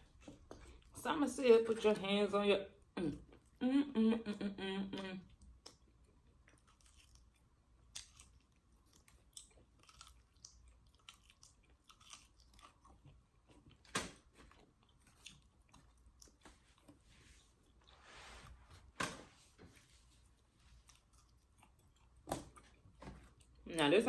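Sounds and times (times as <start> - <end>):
person chewing crispy chicken: 5.4 - 17.0, 20.7 - 23.6.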